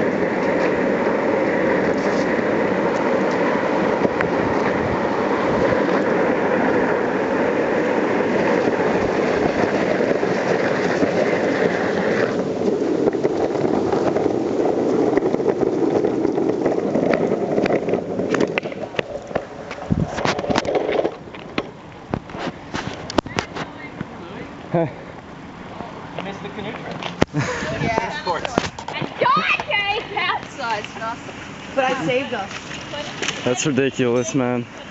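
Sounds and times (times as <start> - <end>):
longboard wheels rolling on pavement: 0.0 - 34.9.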